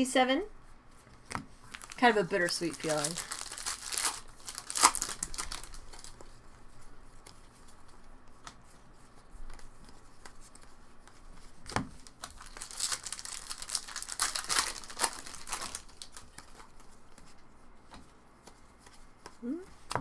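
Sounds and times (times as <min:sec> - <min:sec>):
foil wrappers crinkling and tearing: 0:01.6 - 0:06.4, 0:11.4 - 0:17.4.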